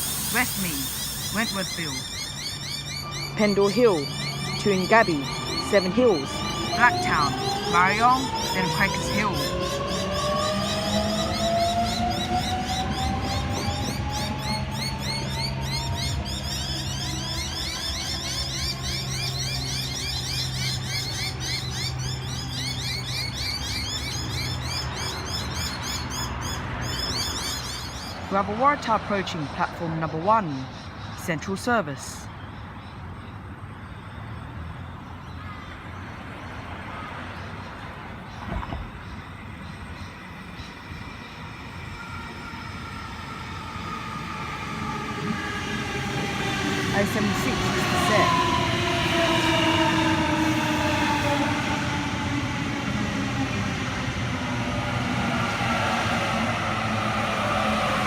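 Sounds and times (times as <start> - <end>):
train wheels rumbling on rail: 0.0 - 2.7, 4.0 - 28.2, 38.3 - 58.0
traction motor whine: 0.0 - 19.7
small birds chirping: 0.0 - 28.8.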